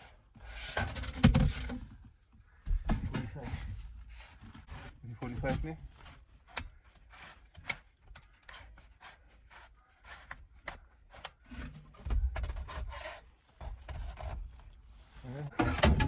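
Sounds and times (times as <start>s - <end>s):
pipe fittings rubbing and scraping: 3.2s - 16.0s.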